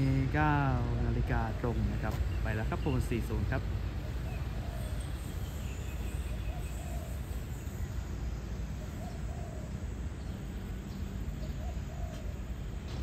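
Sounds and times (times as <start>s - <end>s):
bird hooting: 3.9s - 7.8s, 8.7s - 10.1s, 11.4s - 12.4s.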